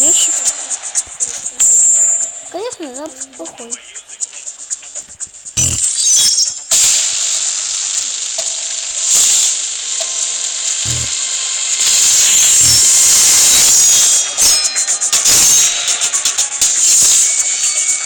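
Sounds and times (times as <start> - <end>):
whirr of spinning tops: 0.0 - 6.6.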